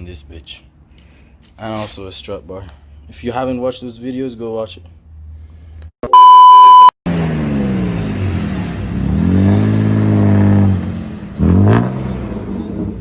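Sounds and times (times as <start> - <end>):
loud steady beep: 6.0 - 6.9
car engine revving: 7.1 - 13.0.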